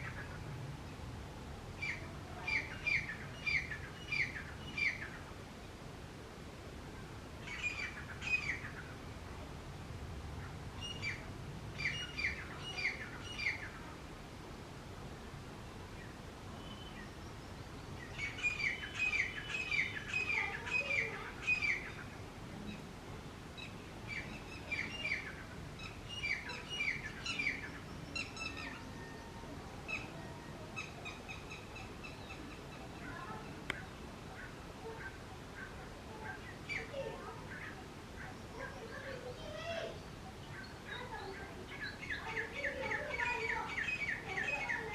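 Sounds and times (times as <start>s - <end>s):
francolin calling: 1.8s - 5.3s, 16.5s - 22.8s, 23.6s - 44.9s.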